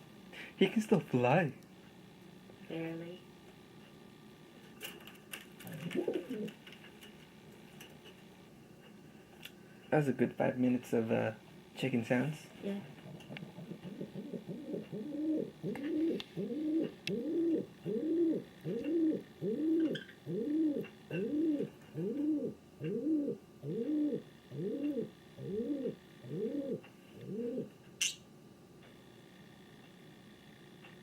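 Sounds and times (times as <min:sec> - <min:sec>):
pigeon cooing: 0:05.6 - 0:06.6, 0:12.6 - 0:28.2.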